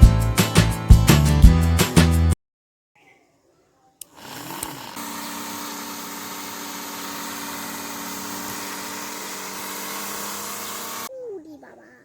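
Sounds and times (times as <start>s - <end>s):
small electric motor whining: 4.0s - 11.1s.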